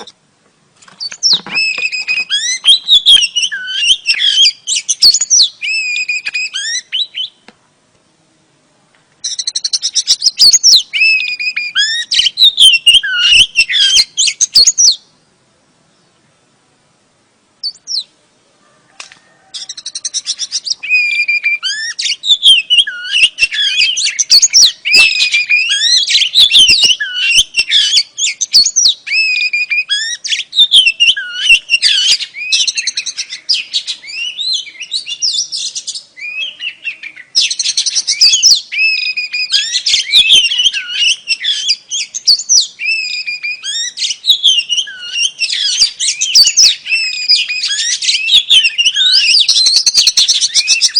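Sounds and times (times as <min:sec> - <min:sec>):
bird singing whistles and trills: 0:01.0 - 0:07.4, 0:09.2 - 0:15.2, 0:17.6 - 0:18.1, 0:19.3 - 0:50.9.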